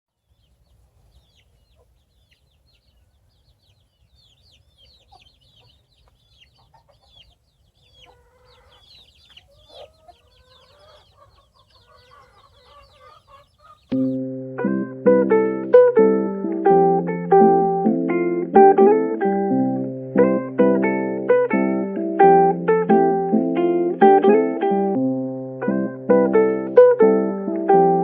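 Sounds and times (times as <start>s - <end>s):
chickens clucking: 0.2s - 14.2s
chicks chirping: 0.2s - 14.3s.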